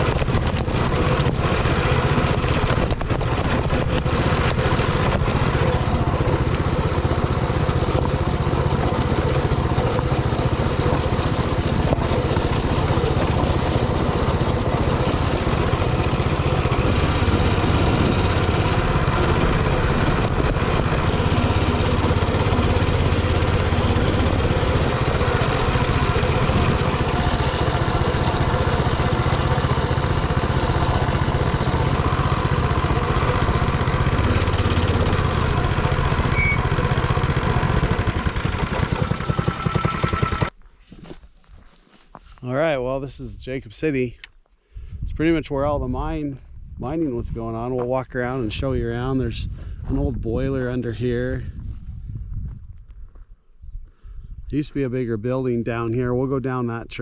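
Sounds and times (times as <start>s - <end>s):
mini bike engine running: 0.0s - 40.5s
rattles and knocks: 7.6s - 40.5s.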